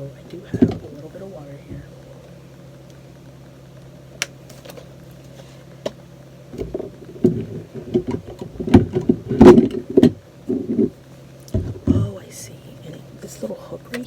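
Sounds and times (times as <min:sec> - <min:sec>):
steady low hum: 0:00.0 - 0:14.0
knocks and rattles: 0:00.3 - 0:01.9, 0:06.6 - 0:12.2.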